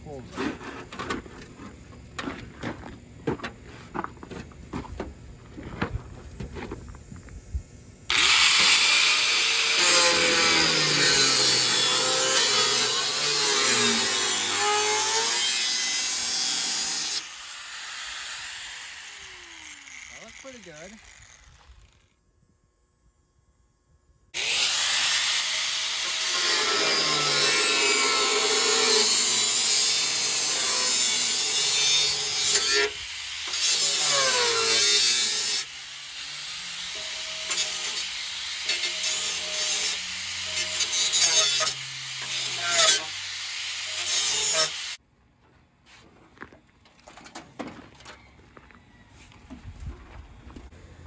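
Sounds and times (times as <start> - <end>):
power tool cutting sheet metal: 8.1 - 22.1, 24.4 - 45.0.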